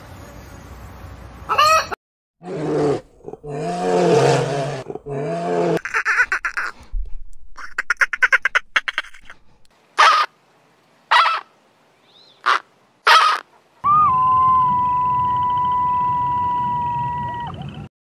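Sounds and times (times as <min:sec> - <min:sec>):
dolphin clicking: 0:05.8 - 0:09.7
flamingo honks: 0:12.4 - 0:13.6.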